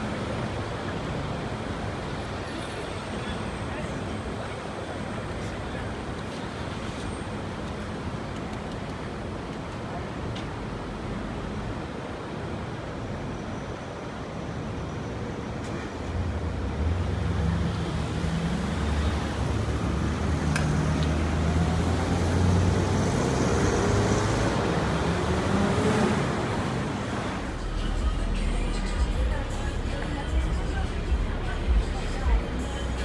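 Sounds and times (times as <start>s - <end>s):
city street traffic noise: 0.0s - 33.0s
vehicle engine passing close by: 16.7s - 33.0s.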